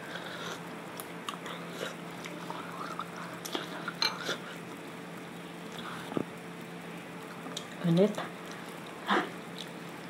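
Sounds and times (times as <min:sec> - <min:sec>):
steady low hum: 0:00.0 - 0:10.0
person chewing: 0:00.3 - 0:04.7, 0:08.4 - 0:09.8.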